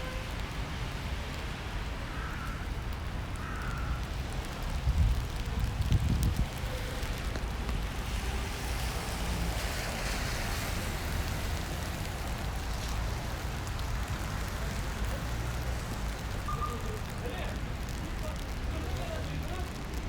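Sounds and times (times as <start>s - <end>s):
rain hiss: 0.0s - 20.0s
traffic rumble: 0.0s - 20.0s.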